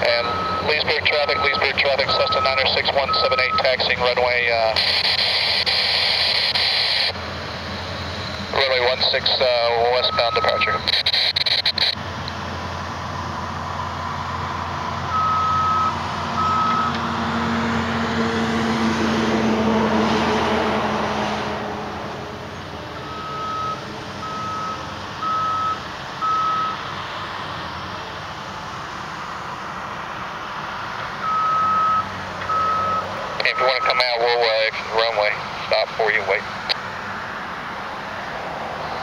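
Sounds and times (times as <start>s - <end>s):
airplane engine and airflow: 0.0s - 39.0s
high-pitched beep: 0.1s - 3.9s, 10.0s - 12.0s.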